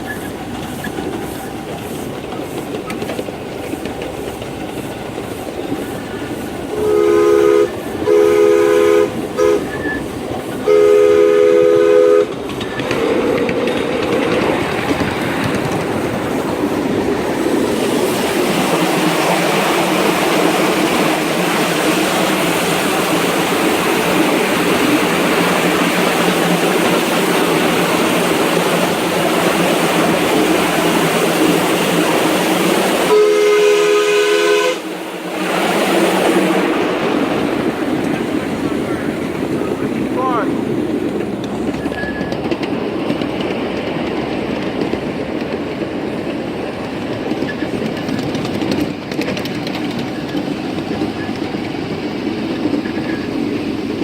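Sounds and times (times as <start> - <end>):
train running with rushing noise: 0.0 - 54.0
steam locomotive chime whistle: 6.7 - 12.4, 33.1 - 34.9.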